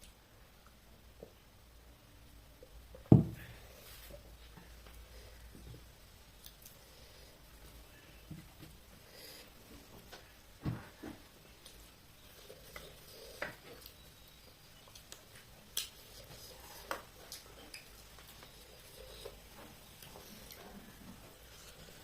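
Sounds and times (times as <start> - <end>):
eating sounds: 11.6 - 22.0.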